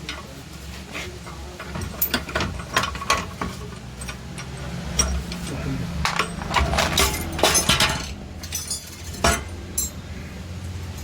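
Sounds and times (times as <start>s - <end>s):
low steady hum: 0.0s - 11.0s
metal hand tools clinking: 1.6s - 10.0s.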